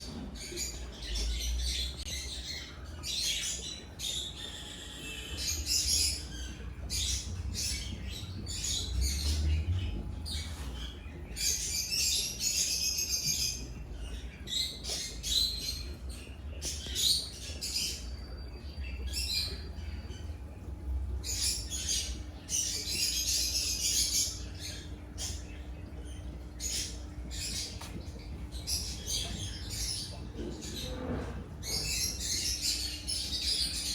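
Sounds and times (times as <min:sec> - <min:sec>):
small birds chirping: 0:00.0 - 0:33.9
low steady rumble: 0:05.6 - 0:12.4.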